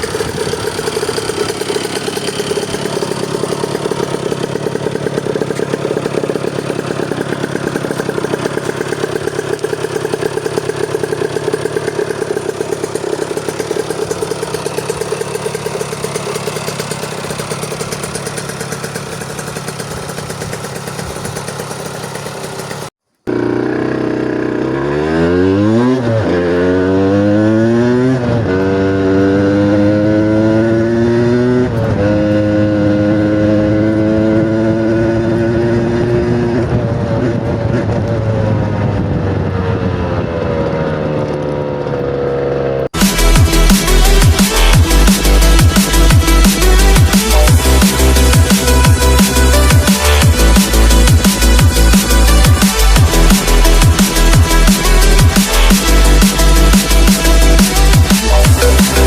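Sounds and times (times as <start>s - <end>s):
two-stroke engine revving: 0.0s - 59.0s.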